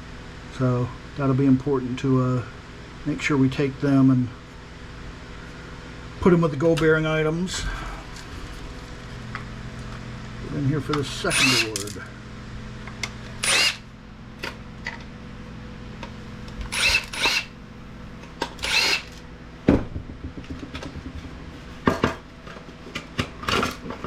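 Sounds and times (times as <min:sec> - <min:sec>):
cordless screwdriver spinning: 0:11.3 - 0:11.9, 0:13.4 - 0:13.8, 0:16.7 - 0:17.5, 0:18.6 - 0:19.2
parts clicking and knocking: 0:16.0 - 0:17.5.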